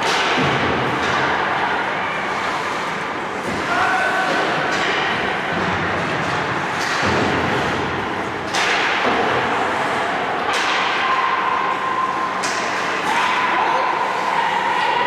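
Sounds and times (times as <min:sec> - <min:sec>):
sharp hockey hits: 0:00.0 - 0:01.5, 0:04.3 - 0:09.5, 0:10.4 - 0:11.3.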